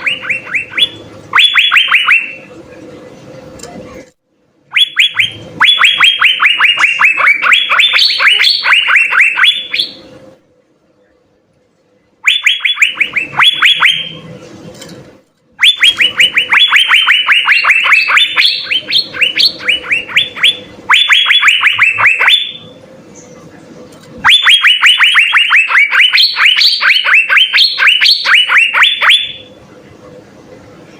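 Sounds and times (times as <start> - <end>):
bird whistling song: 0.0 - 2.4, 4.7 - 10.1, 12.2 - 14.2, 15.6 - 23.4.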